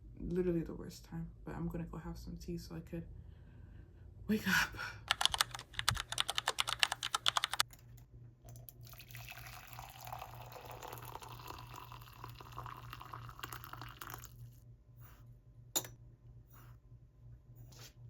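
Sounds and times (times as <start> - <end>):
laptop keyboard typing: 5.1 - 7.9
water pouring into a cup: 8.7 - 14.6.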